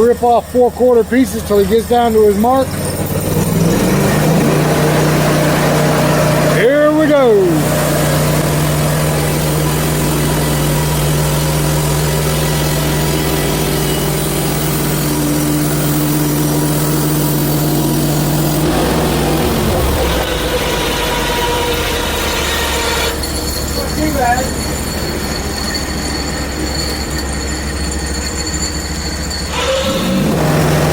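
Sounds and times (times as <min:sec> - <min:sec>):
gasoline engine running: 0:00.0 - 0:30.9
band blade cutting log: 0:07.4 - 0:23.2.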